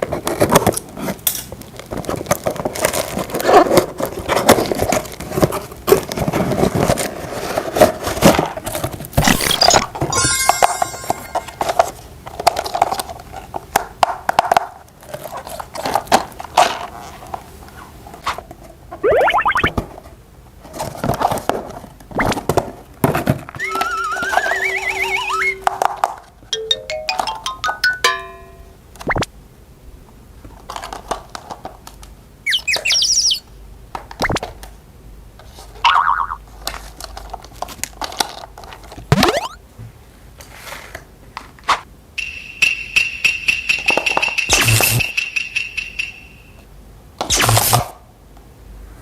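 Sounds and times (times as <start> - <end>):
cartoon downward pitch sweeps: 19.0 - 19.8, 23.6 - 25.7, 39.1 - 39.6
short rising tone: 23.6 - 25.6
rapid bird-like chirps: 32.5 - 33.5.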